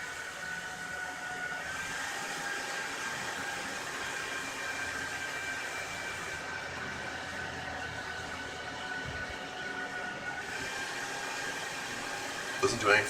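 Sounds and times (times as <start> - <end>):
computer cooling fans whirring: 0.0 - 13.0.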